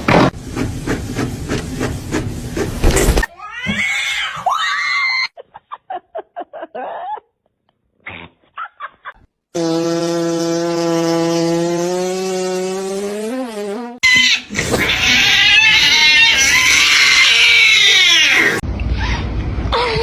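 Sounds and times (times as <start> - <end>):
cats meowing and yowling: 14.1 - 19.2.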